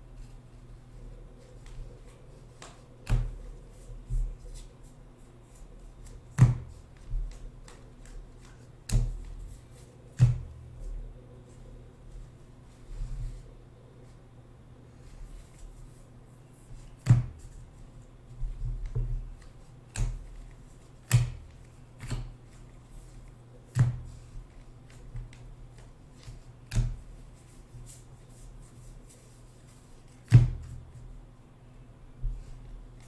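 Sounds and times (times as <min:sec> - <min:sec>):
cards snapping and tapping: 0:18.9 - 0:20.2, 0:21.0 - 0:22.3.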